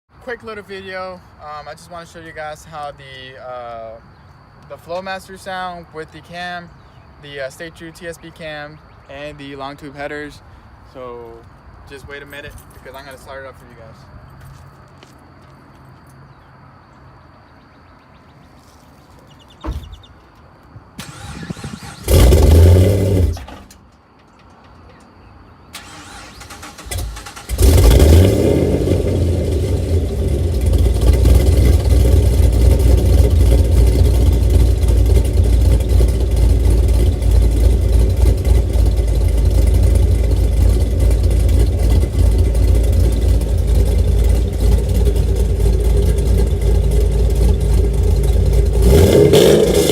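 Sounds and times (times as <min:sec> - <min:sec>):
car engine starting and idling: 0:20.9 - 0:23.8, 0:25.7 - 0:49.9.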